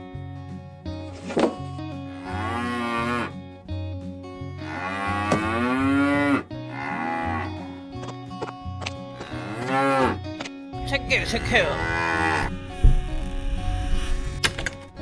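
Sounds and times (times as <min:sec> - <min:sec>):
cattle mooing: 0:02.1 - 0:03.4, 0:04.6 - 0:07.8, 0:09.2 - 0:10.2, 0:11.2 - 0:14.5.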